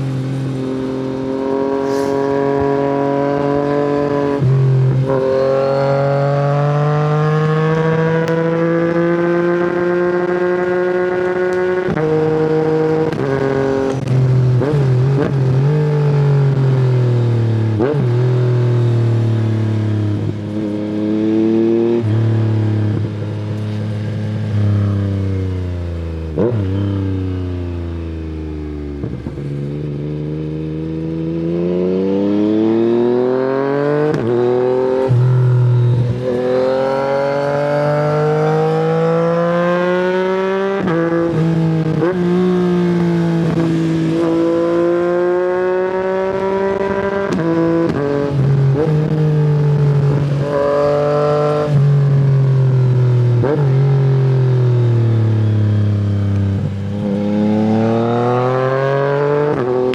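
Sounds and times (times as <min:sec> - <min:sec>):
motorcycle engine: 0:00.0 - 0:59.9.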